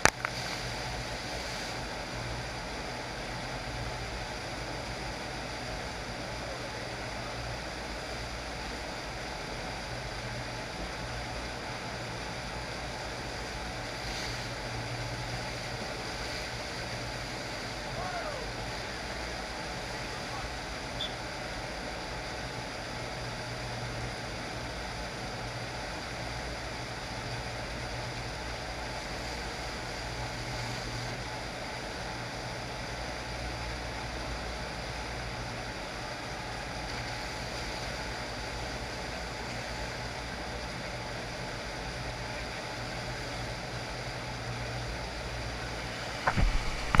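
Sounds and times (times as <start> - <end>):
low machine hum: 0.0 - 47.0
rushing water: 45.8 - 47.0.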